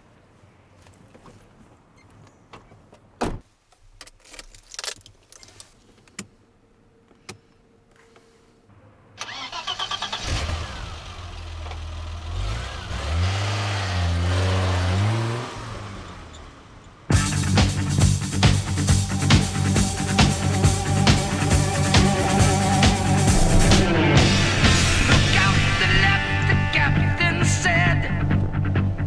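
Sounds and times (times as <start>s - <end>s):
car engine revving: 9.3s - 27.1s.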